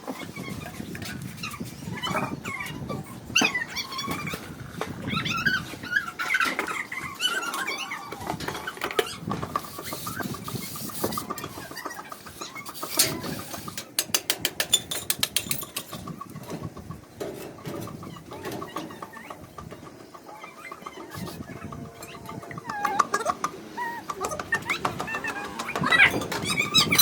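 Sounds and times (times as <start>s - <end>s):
chickens clucking: 0.0s - 27.0s.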